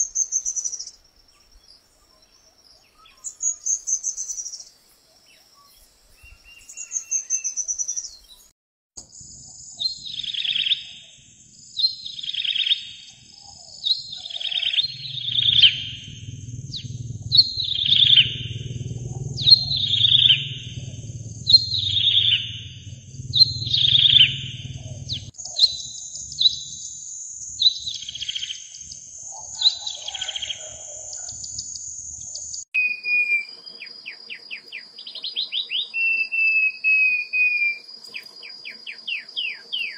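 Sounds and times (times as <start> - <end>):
songbird trilling: 5.3 - 8.4, 9.8 - 11.2, 11.8 - 27.0, 27.6 - 39.9
steady high tone: 14.6 - 25.4.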